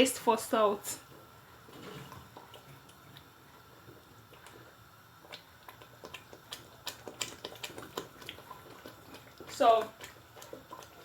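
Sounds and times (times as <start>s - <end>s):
spoon stirring sauce in a pot: 4.2s - 11.0s.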